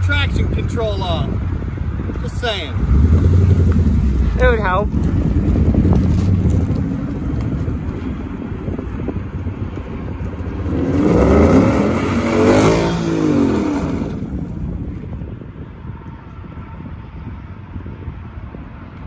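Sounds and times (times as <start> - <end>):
car engine revving: 2.7 - 7.9, 10.3 - 14.4.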